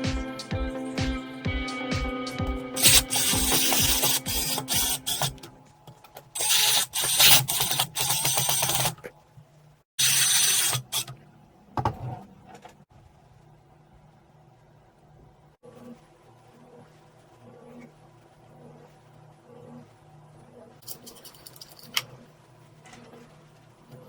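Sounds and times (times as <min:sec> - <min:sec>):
background music: 0:00.0 - 0:05.6
small motorised tool running: 0:02.8 - 0:05.5, 0:06.4 - 0:09.0, 0:10.0 - 0:11.1.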